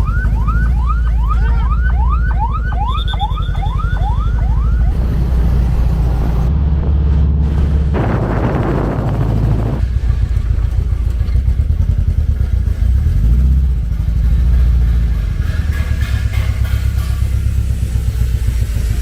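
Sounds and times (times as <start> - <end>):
electronic siren yelping: 0.0 - 5.6
car engine drone: 0.0 - 19.0.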